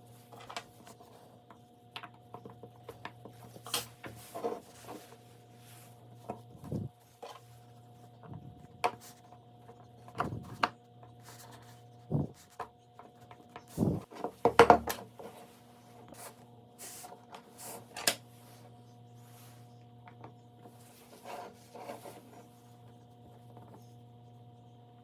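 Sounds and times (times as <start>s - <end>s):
steady low hum: 0.0s - 25.0s
soft rubbing: 15.2s - 19.8s.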